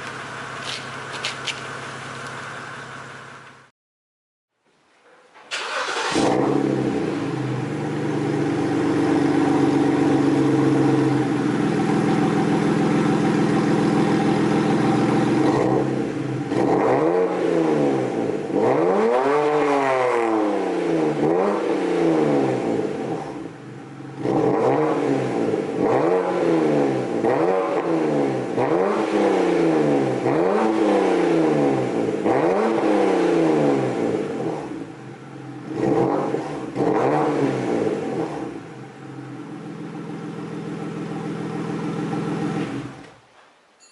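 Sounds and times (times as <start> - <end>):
car engine idling: 0.0 - 3.7, 5.6 - 16.5, 34.2 - 35.8, 37.9 - 43.0
car engine starting: 5.3 - 43.3
car engine revving: 5.5 - 43.1.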